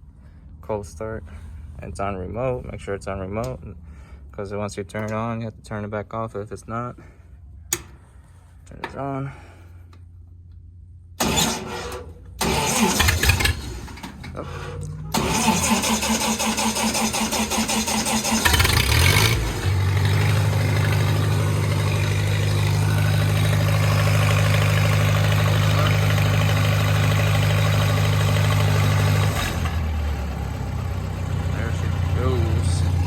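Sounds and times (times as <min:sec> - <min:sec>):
engine running: 0:07.5 - 0:33.0
starter motor cranking: 0:11.2 - 0:29.9.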